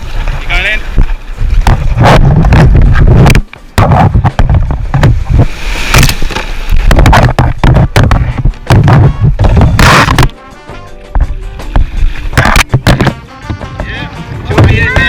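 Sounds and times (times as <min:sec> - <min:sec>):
wind buffeting on microphone: 0:00.0 - 0:10.3, 0:11.1 - 0:15.0
sharp knocks: 0:06.3 - 0:10.3, 0:11.2 - 0:13.7.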